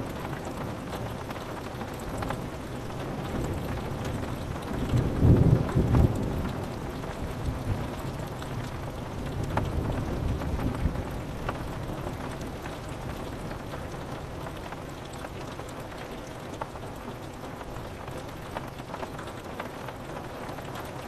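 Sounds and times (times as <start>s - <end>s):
rain on a window: 0.0s - 21.0s
low thunder rumble: 3.1s - 11.8s.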